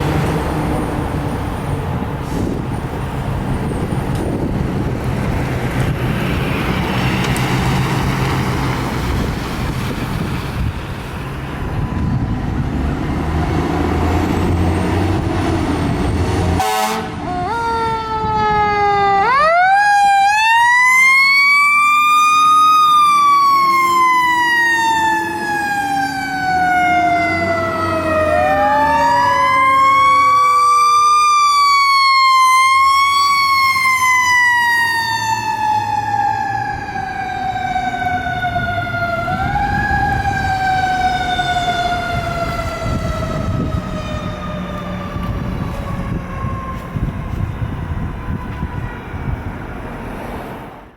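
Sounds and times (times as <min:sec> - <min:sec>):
diesel engine: 0:00.0 - 0:50.9
road noise: 0:00.0 - 0:50.9
mechanical siren wailing: 0:16.6 - 0:49.6.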